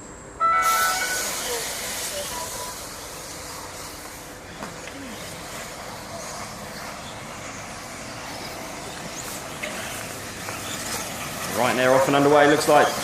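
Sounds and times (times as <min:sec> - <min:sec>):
short whines: 0:00.4 - 0:01.7.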